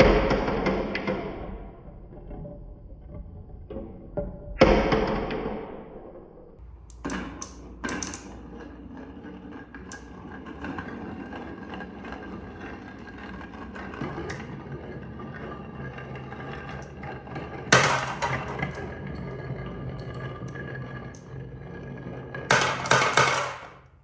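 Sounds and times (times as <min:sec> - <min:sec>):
marbles clacking on track: 0:06.9 - 0:15.6, 0:16.4 - 0:23.9
marbles rolling down toy track: 0:06.9 - 0:23.9.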